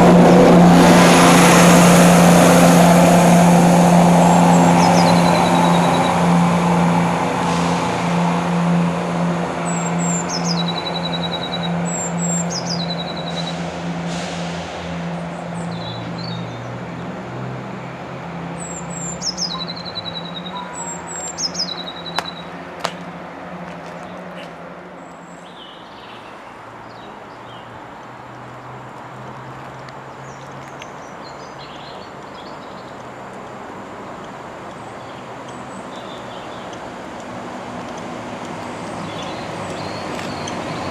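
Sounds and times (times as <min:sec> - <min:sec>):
low engine hum: 0:00.0 - 0:24.8, 0:32.5 - 0:40.9
high bird chirps: 0:09.7 - 0:13.6, 0:18.6 - 0:22.5, 0:38.9 - 0:40.9.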